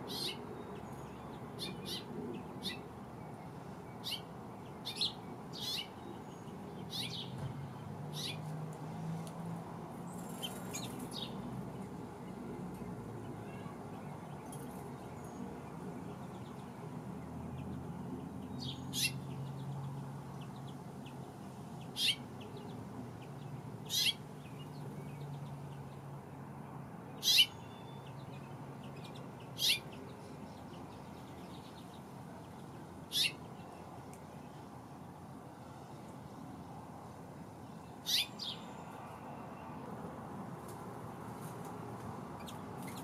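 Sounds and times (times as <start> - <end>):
songbird high-pitched calls: 0.0 - 2.9, 4.0 - 7.4, 8.1 - 8.4, 18.5 - 19.3, 21.9 - 22.3, 23.8 - 25.1, 27.2 - 30.2, 33.1 - 33.8, 38.0 - 39.2.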